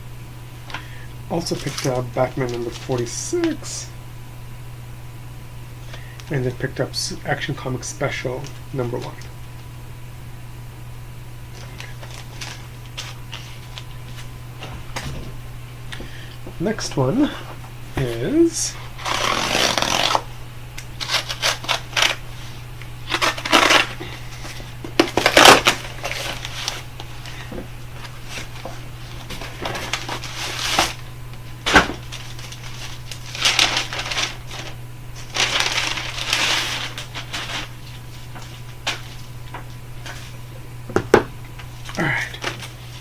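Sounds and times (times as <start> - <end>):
packaging crackling and ripping: 11.6 - 14.0, 19.0 - 20.3, 20.9 - 22.3, 23.0 - 40.3
cardboard box being torn open: 25.0 - 26.8.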